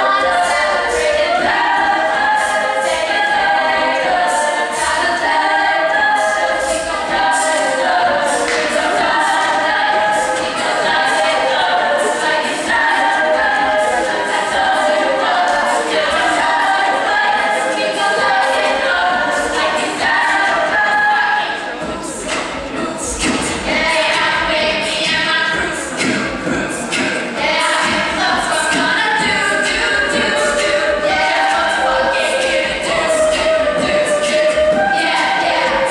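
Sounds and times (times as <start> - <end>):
group singing in harmony: 0.0 - 35.9
vocal beatbox: 21.5 - 35.9.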